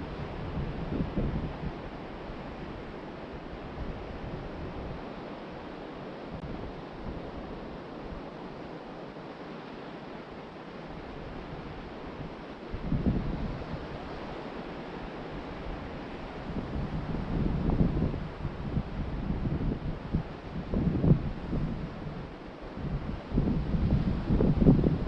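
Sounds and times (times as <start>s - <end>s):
wind buffeting microphone: 0.0s - 5.2s, 11.0s - 25.0s
ocean surf washing onto beach: 0.0s - 25.0s.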